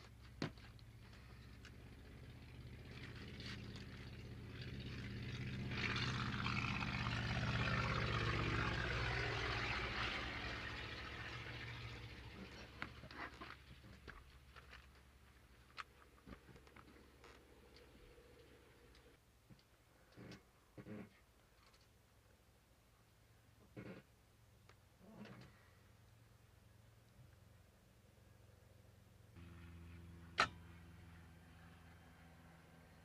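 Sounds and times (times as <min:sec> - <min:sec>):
propeller airplane taking off: 0:01.0 - 0:13.8, 0:29.4 - 0:33.0.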